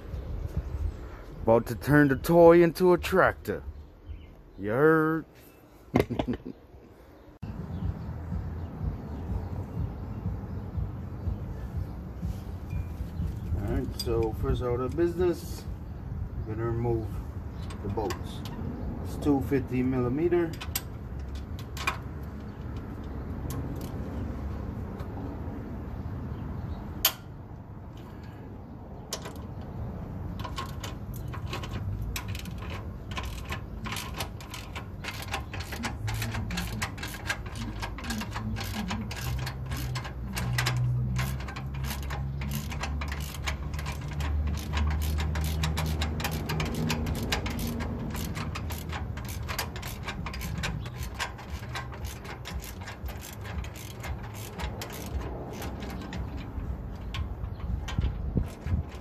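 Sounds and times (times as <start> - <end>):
ratchet wrench clicking: 17.6 - 24.3, 29.1 - 59.0.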